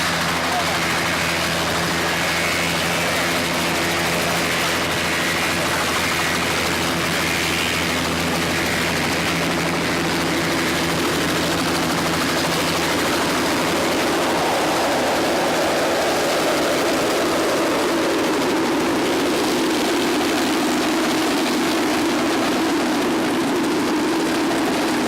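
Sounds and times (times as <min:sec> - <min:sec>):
helicopter engine and rotor: 0:00.0 - 0:25.0.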